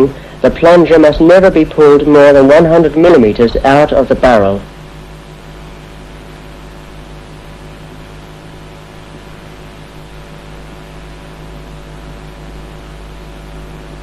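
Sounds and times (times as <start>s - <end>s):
constant hiss: 0.0s - 14.0s
electrical hum: 0.0s - 14.0s.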